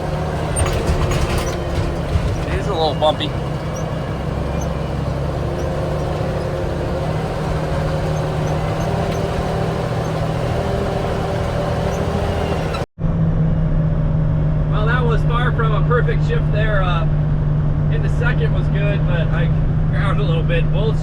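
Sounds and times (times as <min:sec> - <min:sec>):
truck diesel engine running: 0:00.0 - 0:12.9.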